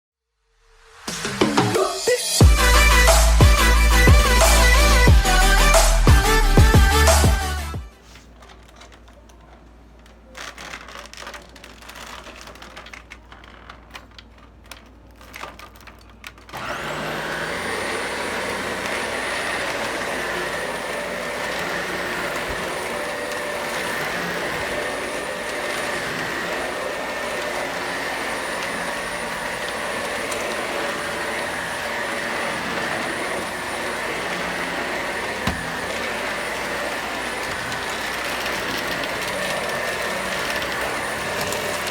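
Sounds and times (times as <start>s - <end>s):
vacuum cleaner running: 0.7s - 8.4s, 16.5s - 41.9s
handling noises: 2.5s - 41.9s.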